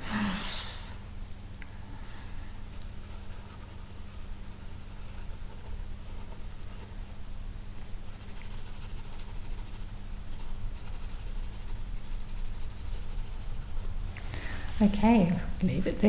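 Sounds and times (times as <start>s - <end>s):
pencil sketching on paper: 2.3s - 6.9s, 7.8s - 13.9s.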